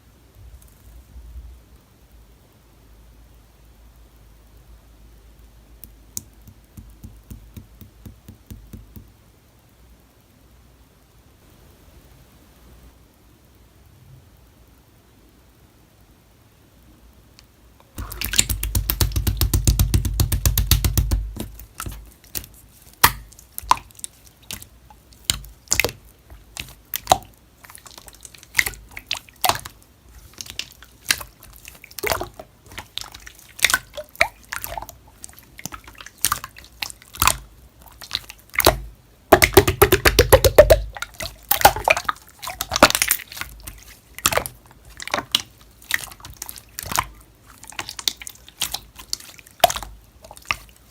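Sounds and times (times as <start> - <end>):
slime squished by hand: 18.0 - 50.9.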